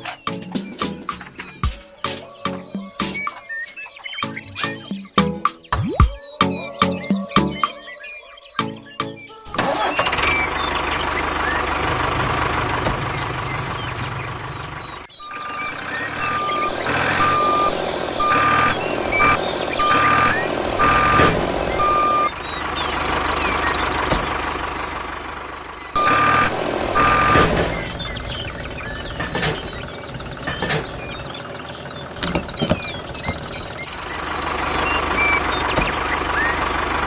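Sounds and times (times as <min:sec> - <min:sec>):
engine running: 0:09.5 - 0:37.0
reversing alarm beeping: 0:15.1 - 0:22.4, 0:25.9 - 0:28.0, 0:28.8 - 0:31.3, 0:32.2 - 0:36.6.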